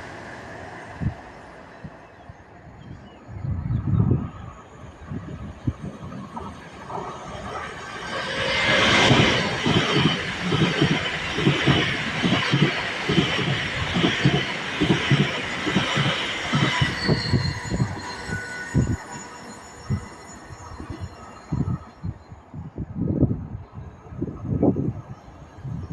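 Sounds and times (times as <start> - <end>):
train wheels clicking over rail joints: 5.9 - 18.0.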